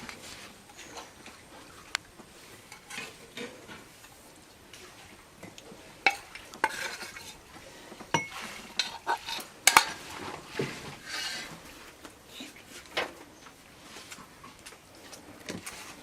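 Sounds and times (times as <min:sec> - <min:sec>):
spoon stirring food in pot: 0:05.4 - 0:07.4, 0:08.1 - 0:11.5.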